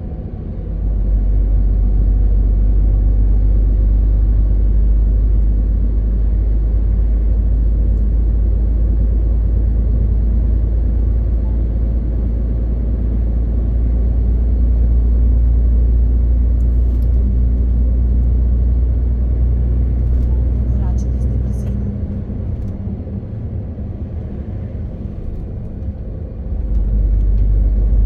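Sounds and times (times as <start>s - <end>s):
truck diesel engine pulling: 9.0s - 28.0s.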